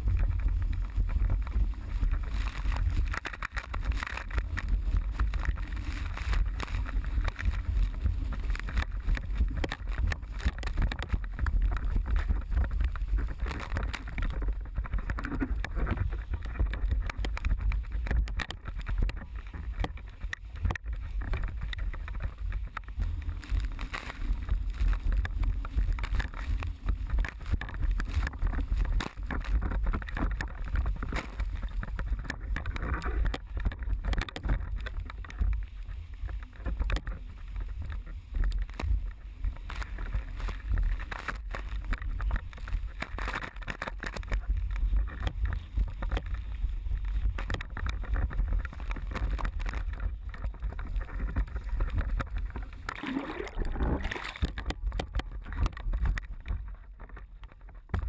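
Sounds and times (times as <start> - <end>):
wind buffeting microphone: 0.0 - 58.0
water rushing and slapping: 47.4 - 56.3.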